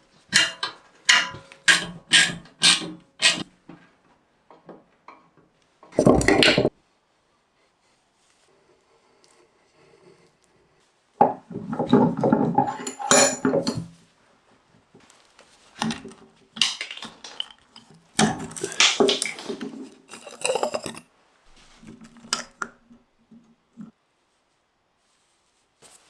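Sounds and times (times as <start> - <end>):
metal parts clattering: 0.3 - 3.4, 12.3 - 13.9, 15.8 - 21.0.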